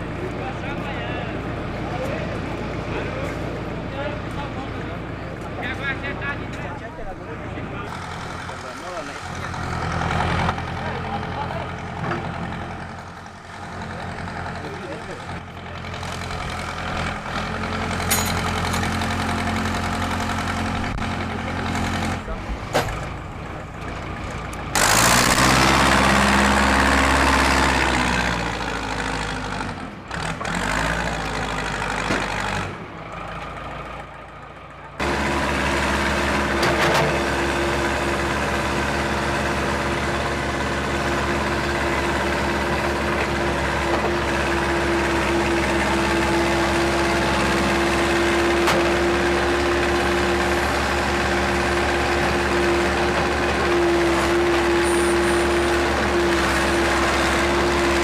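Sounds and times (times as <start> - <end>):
heavy diesel engines running: 0.0 - 58.0
steady engine drone: 0.0 - 58.0.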